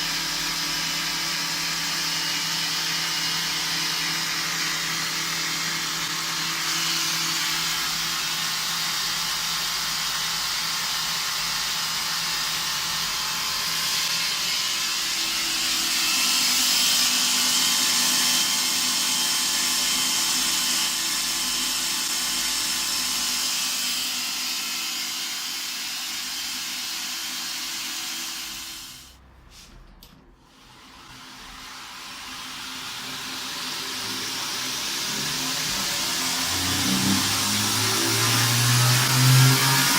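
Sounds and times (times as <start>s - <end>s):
belt grinder motor hum: 0.0s - 29.1s, 31.4s - 39.9s
abrasive belt hissing: 31.4s - 39.9s.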